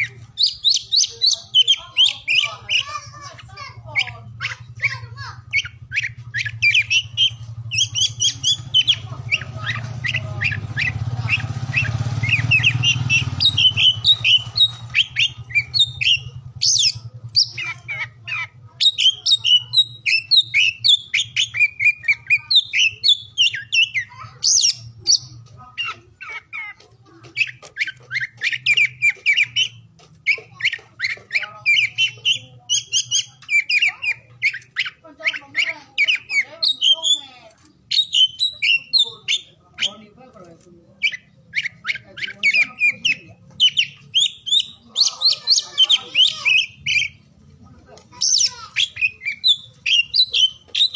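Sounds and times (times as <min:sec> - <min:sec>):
bird singing varied whistles: 0:00.0 - 0:03.0, 0:04.0 - 0:18.0, 0:37.9 - 0:40.0, 0:41.0 - 0:47.2, 0:48.2 - 0:50.9.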